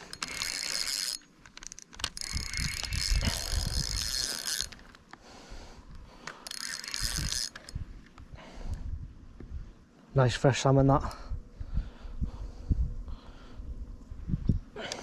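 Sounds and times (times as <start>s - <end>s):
fishing reel ratchet buzzing: 0.0s - 5.0s, 6.3s - 7.8s.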